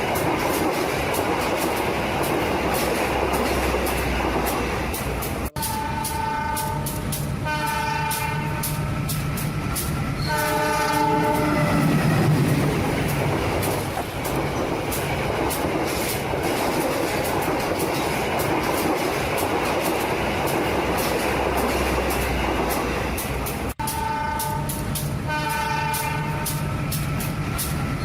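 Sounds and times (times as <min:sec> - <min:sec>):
train rumbling: 0:00.0 - 0:28.0
wheels clacking over rail joints: 0:00.0 - 0:28.0
multi-tone train horn: 0:05.4 - 0:09.1, 0:10.2 - 0:12.0, 0:23.8 - 0:26.8.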